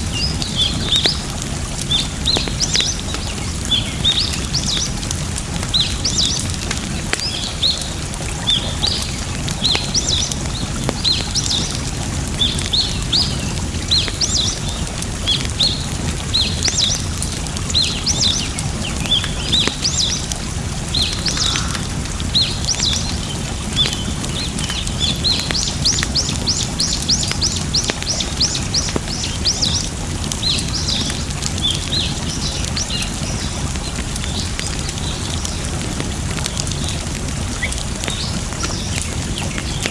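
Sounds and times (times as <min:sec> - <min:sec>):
faint campfire crackle: 0:00.0 - 0:39.9
water rushing: 0:00.0 - 0:39.9
bird chirping: 0:20.9 - 0:33.6.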